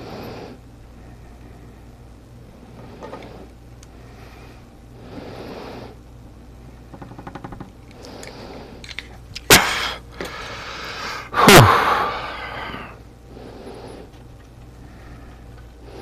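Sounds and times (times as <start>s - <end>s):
person sneezing: 9.5s - 10.0s, 11.3s - 12.9s.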